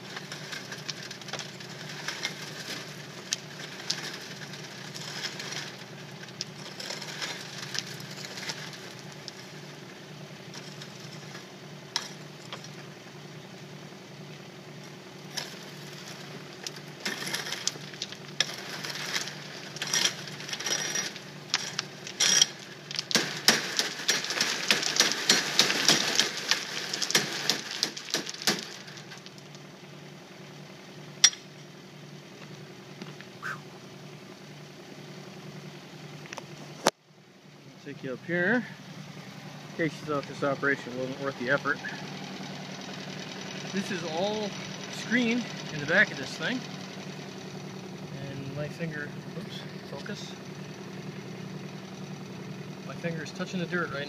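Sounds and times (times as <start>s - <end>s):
stones rattling on metal: 0.0s - 9.8s, 10.4s - 13.0s, 15.2s - 29.7s, 31.2s - 31.5s, 39.8s - 47.6s
diesel excavator engine running: 0.0s - 54.0s.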